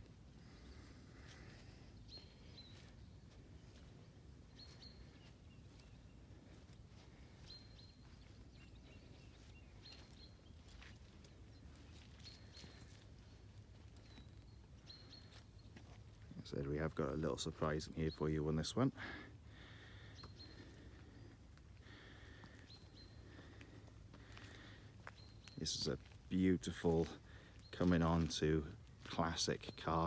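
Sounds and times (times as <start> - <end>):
soft bird chirps: 0.3 - 18.9, 19.5 - 28.5.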